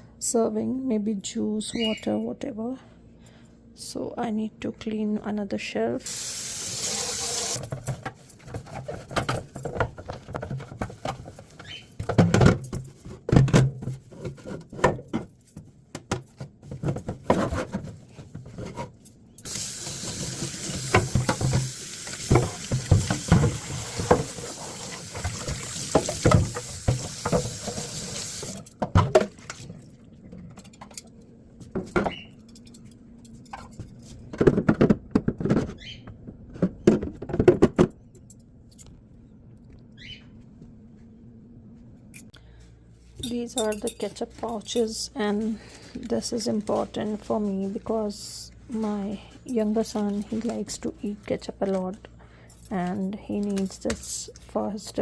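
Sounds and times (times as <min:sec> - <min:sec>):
tap water running: 0:06.0 - 0:07.7, 0:19.4 - 0:28.6
knocks and clatter of shelf: 0:07.6 - 0:19.0, 0:28.8 - 0:29.4, 0:33.5 - 0:38.0.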